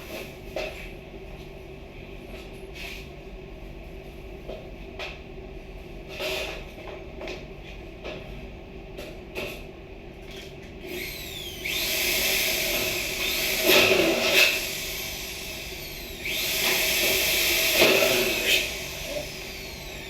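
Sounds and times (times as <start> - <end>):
power tool running: 10.8 - 20.0.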